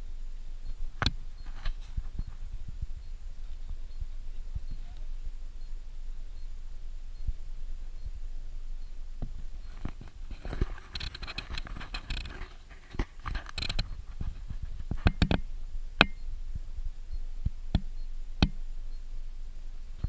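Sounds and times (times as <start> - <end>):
vehicle rumbling on dirt road: 0.0 - 20.0
short rattles: 9.3 - 15.5.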